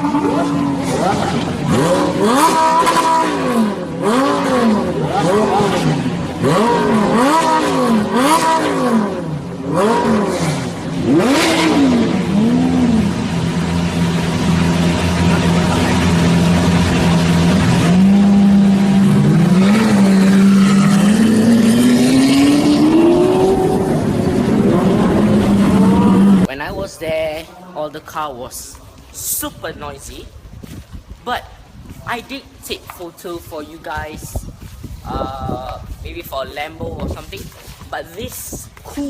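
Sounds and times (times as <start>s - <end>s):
sports car engine revving: 0.0s - 26.5s.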